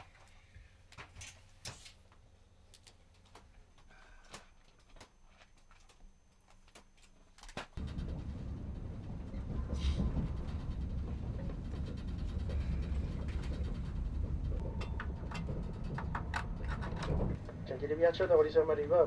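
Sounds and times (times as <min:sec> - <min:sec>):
clicks and rattles: 0:07.0 - 0:17.4
train rumble inside carriage: 0:07.8 - 0:19.0.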